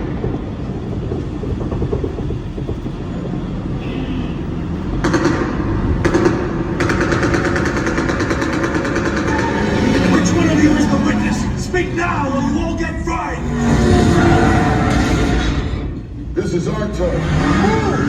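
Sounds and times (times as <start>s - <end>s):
tram rumbling: 0.0s - 18.0s
show sounds rapid pulsing: 5.6s - 18.0s.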